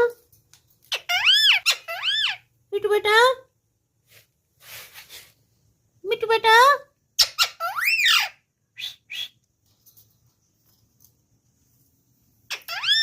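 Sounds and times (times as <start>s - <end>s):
parrot rough chirps: 0.9s - 2.4s, 12.5s - 13.0s.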